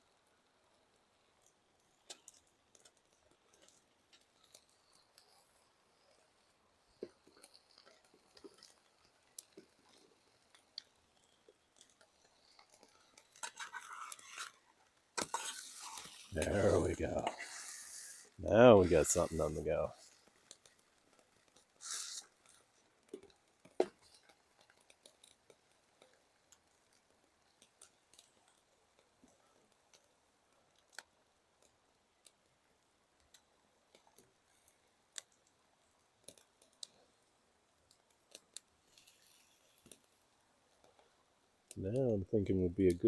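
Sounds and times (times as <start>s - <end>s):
campfire crackling: 0.0s - 43.0s
short hiss: 15.2s - 20.0s, 21.8s - 22.3s.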